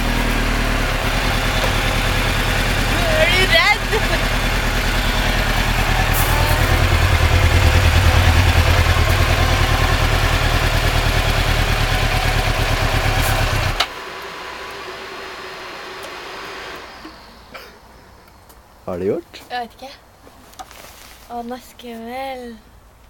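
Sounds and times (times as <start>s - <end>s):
motorcycle engine idling: 0.0s - 13.9s.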